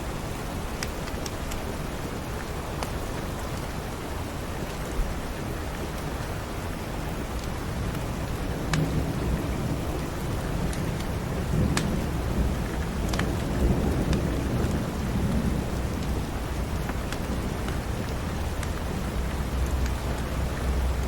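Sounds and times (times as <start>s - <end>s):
steady rain: 0.0s - 21.0s
wood fire crackling: 7.3s - 21.0s
thunder rumbling: 8.2s - 21.0s.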